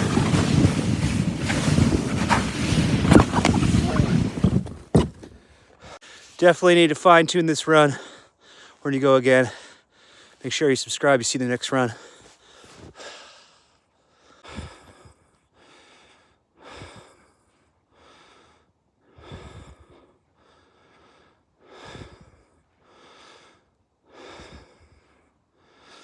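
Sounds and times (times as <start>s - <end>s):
man breathing heavily: 8.0s - 8.8s, 9.5s - 10.4s, 12.0s - 26.0s.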